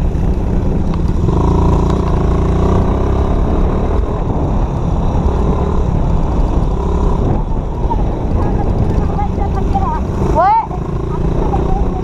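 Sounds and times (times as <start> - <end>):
dirt bike engine running: 0.0 - 12.0
wind rumble on microphone: 0.0 - 12.0.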